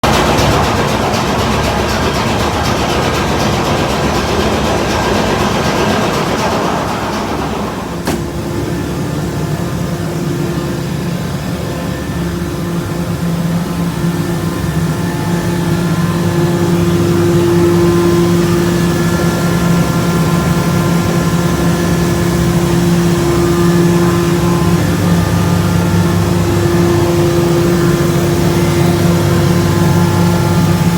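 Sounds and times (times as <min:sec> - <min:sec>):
machine hum with held tones: 0:00.0 - 0:30.9
noisy wash: 0:00.0 - 0:30.9
sharp click: 0:08.0 - 0:08.5.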